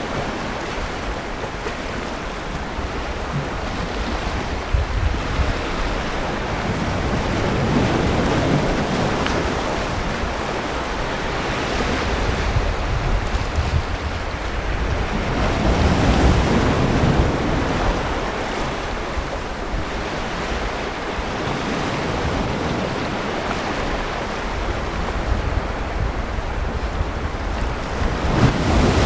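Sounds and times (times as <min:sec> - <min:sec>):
sea waves breaking on beach: 0:00.0 - 0:29.0
wind rumble on microphone: 0:00.0 - 0:29.0.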